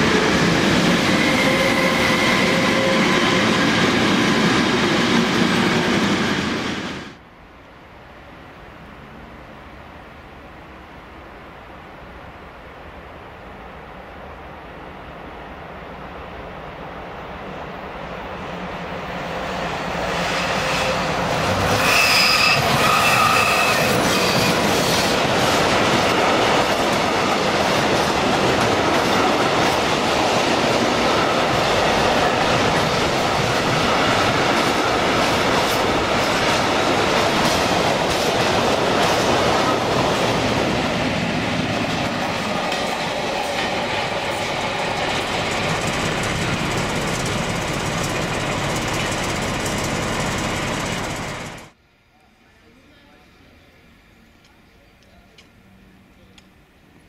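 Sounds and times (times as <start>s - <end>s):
high wheel squeal: 20.3s - 25.2s.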